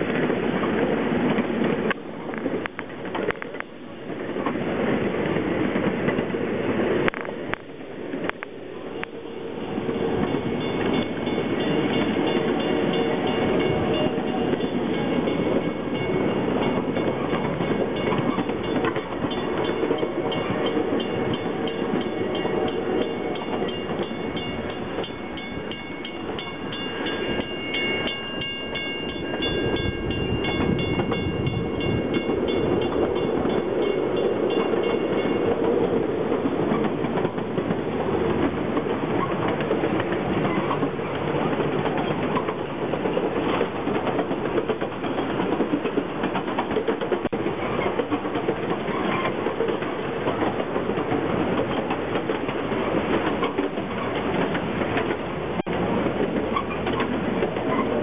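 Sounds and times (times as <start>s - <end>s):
train wheels clicking on rails: 0.0s - 58.0s.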